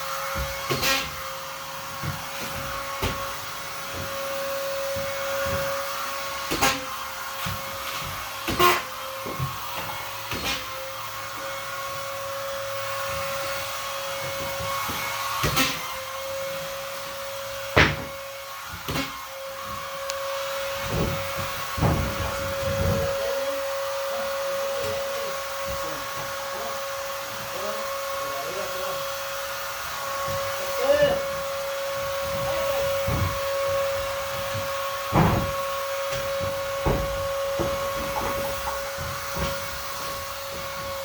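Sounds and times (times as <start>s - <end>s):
vacuum cleaner whining: 0.0s - 41.0s
knocks and bumps: 20.7s - 23.2s, 32.0s - 41.0s.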